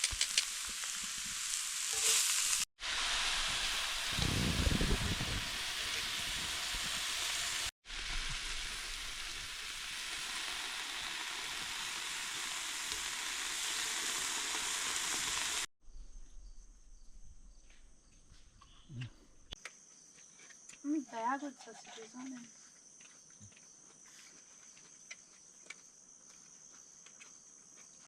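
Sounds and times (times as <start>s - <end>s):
sausages sizzling in a pan: 0.0s - 15.7s
insect trill: 15.8s - 19.0s.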